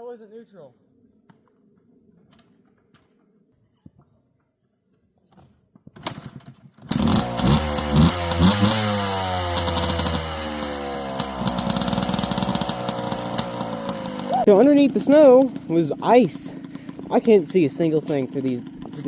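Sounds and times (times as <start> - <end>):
two-stroke engine starting and revving: 6.0 - 19.0.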